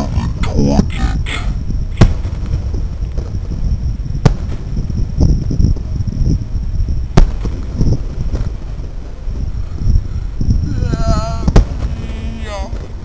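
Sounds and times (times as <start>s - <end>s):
fireworks booming: 0.0s - 13.0s
sharp loud bangs: 2.0s - 2.4s.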